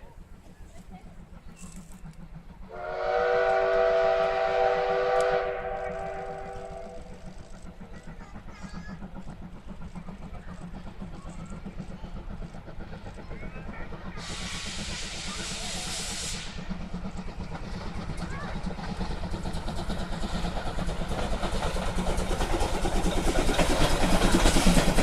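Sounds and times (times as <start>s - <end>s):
train running: 0.0s - 25.0s
train whistle chord: 2.7s - 7.1s.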